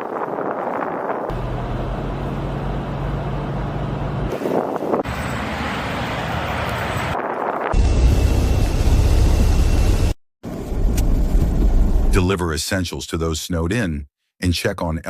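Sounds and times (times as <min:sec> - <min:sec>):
wind noise: 0:00.0 - 0:01.4, 0:04.2 - 0:05.2, 0:06.0 - 0:12.2
vehicles: 0:00.3 - 0:12.1
low engine hum: 0:01.3 - 0:07.2, 0:07.8 - 0:12.2.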